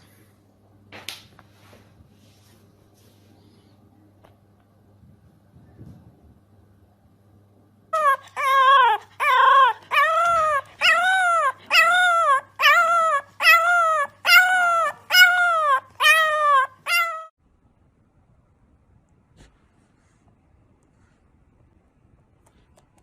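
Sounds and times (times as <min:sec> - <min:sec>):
animal crying high calls: 0:08.0 - 0:17.3.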